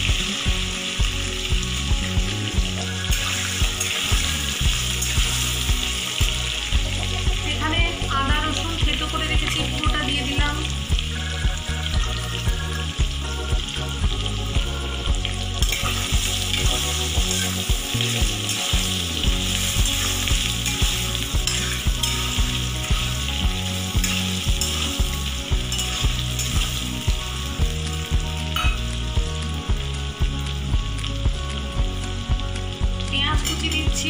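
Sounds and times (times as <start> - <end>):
food sizzling in hot oil: 0.0 - 34.0
metal spatula stirring: 3.1 - 5.6, 15.6 - 26.9
low pulsing beat: 3.6 - 33.1.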